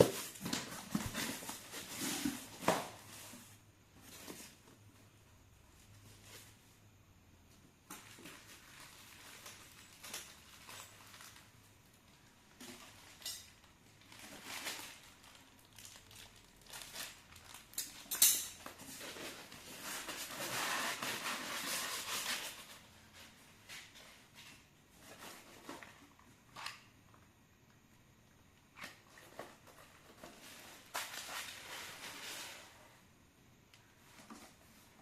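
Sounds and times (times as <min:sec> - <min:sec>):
packaging rustling: 0:12.7 - 0:18.0
clicks and clinks of hard parts: 0:17.8 - 0:18.7.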